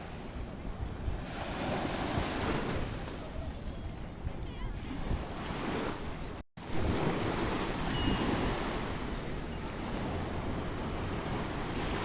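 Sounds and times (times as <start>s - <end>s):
wind buffeting microphone: 0.0s - 12.0s
sea surf breaking: 4.8s - 12.0s.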